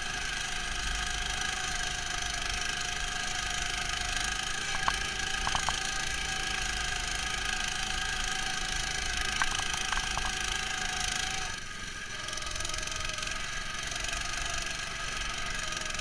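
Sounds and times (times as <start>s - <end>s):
short clicks or rattles: 4.7s - 5.9s, 9.3s - 10.4s.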